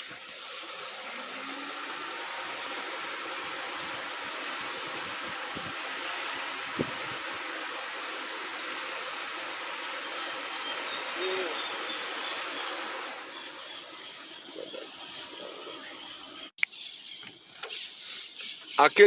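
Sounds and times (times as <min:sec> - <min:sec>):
outdoor ambient hiss: 0:00.0 - 0:19.0
distant bird chirps: 0:10.0 - 0:19.0.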